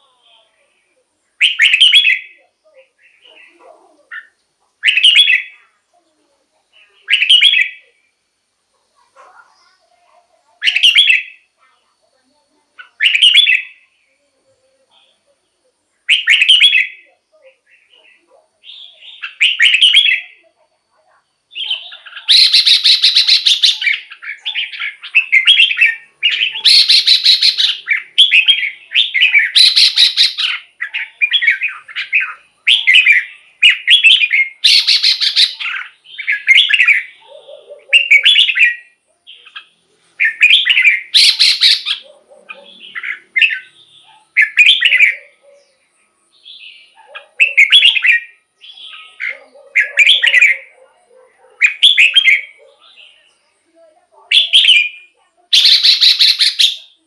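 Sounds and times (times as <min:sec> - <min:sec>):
bird singing warbled phrases: 0:00.0 - 0:57.0.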